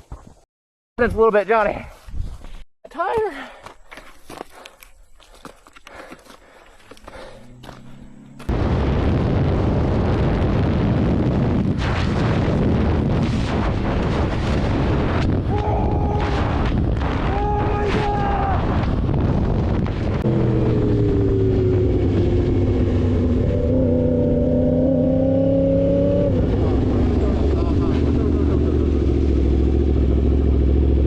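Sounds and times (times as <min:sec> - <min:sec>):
motorcycle engine note: 0:07.1 - 0:08.5
wind rush and road noise: 0:08.8 - 0:24.8.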